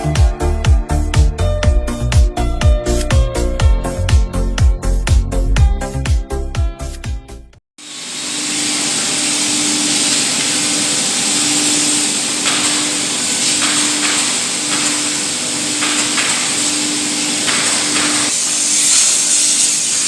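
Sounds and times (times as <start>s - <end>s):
hissing machine noise: 7.8s - 20.0s.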